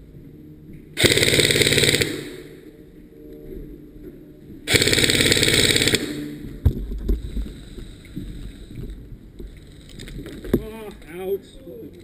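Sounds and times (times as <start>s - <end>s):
airsoft gun full-auto burst: 1.0s - 2.5s, 4.7s - 6.4s.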